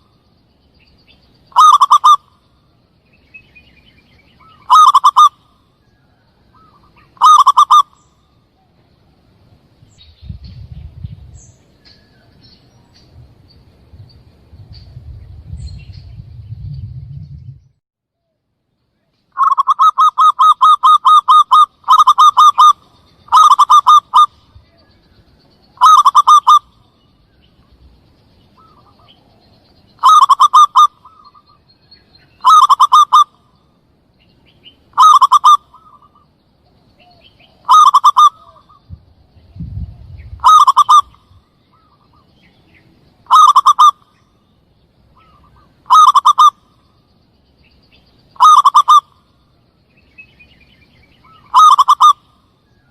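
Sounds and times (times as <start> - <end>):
dove rapid staccato cooing: 1.6 - 2.2, 4.6 - 5.4, 6.6 - 8.0, 19.4 - 24.4, 25.8 - 26.7, 30.0 - 31.2, 32.4 - 33.4, 34.9 - 36.2, 37.6 - 38.8, 40.4 - 41.2, 43.3 - 44.0, 45.2 - 46.6, 48.4 - 49.2, 51.4 - 52.3.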